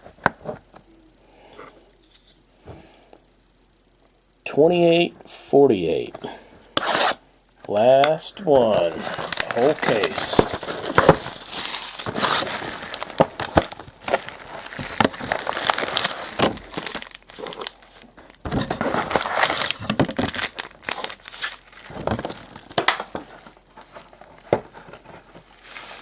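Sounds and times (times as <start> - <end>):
plastic wrapping crinkling and tearing: 8.5 - 26.0.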